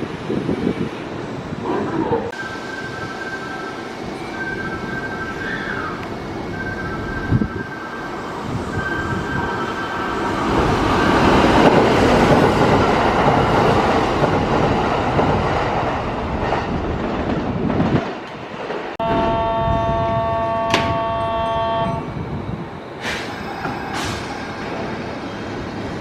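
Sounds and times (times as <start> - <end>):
electric train running past: 2.3 - 26.0
train horn blast: 19.0 - 22.1.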